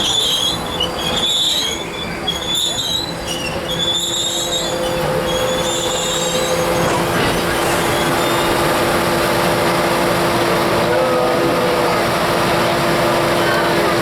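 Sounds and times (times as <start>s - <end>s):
train brakes squealing: 0.0s - 8.9s
train rumble and hum: 0.0s - 14.0s.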